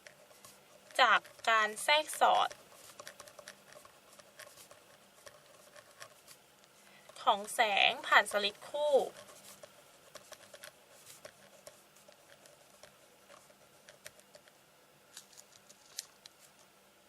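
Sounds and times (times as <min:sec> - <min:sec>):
pen writing on paper: 0:00.0 - 0:06.4, 0:08.7 - 0:14.6
low room hum: 0:00.0 - 0:17.0.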